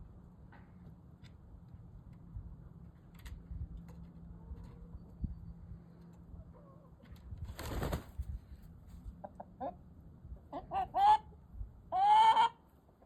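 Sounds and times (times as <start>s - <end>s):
wings flapping: 7.4s - 8.3s
hen clucking and squawking: 9.1s - 13.0s.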